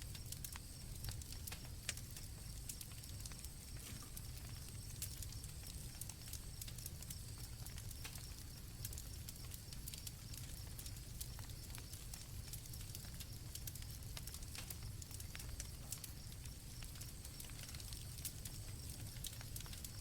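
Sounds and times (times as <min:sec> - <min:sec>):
campfire crackling and popping: 0:00.0 - 0:20.0
crickets chirping: 0:00.0 - 0:20.0.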